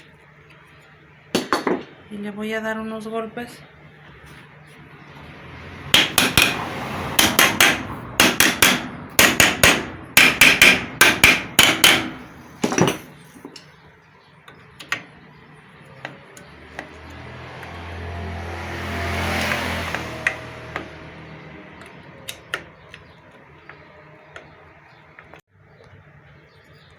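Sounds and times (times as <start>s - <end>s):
hammer tapping metal cover: 7.2s - 13.6s.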